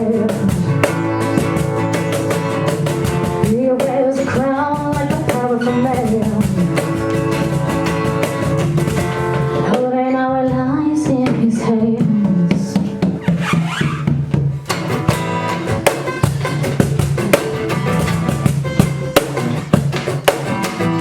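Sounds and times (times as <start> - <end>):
woman singing: 0.0 - 1.4, 2.5 - 13.2
drum kit: 0.0 - 21.0
guitar: 0.0 - 21.0.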